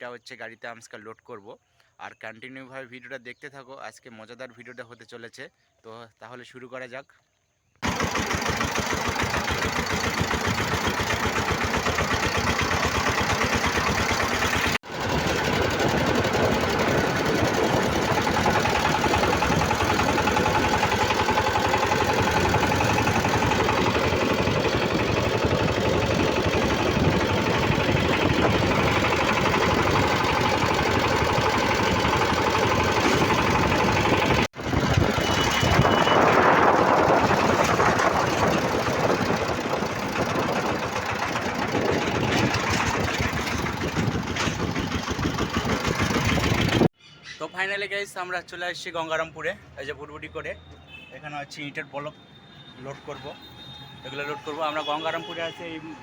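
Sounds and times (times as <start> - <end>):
diesel engine knocking: 7.8 - 46.9.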